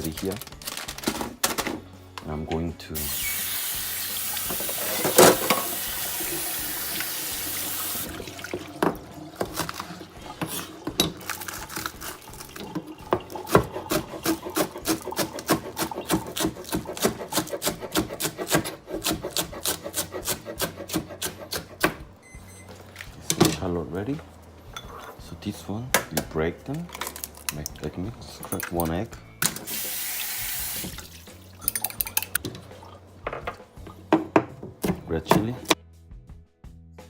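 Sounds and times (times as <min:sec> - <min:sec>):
kitchen tap running: 0:03.0 - 0:17.1, 0:29.4 - 0:32.4
knife chopping on cutting board: 0:13.4 - 0:22.0.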